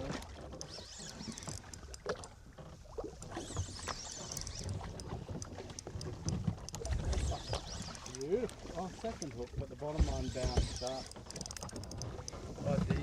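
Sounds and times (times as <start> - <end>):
water slapping against hull: 0.0 - 13.0
light clicks and knocks: 4.3 - 13.0.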